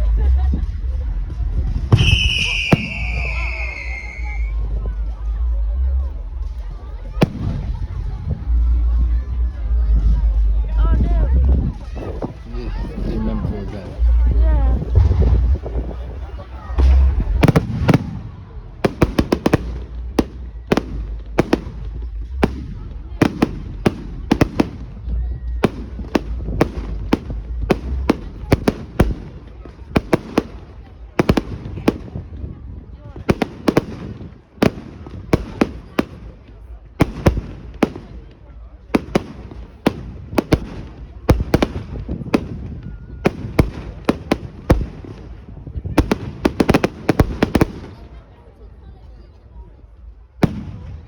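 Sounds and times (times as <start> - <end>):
fireworks cracks and bangs: 0.0 - 48.4, 50.0 - 51.0
low steady rumble: 4.3 - 29.4.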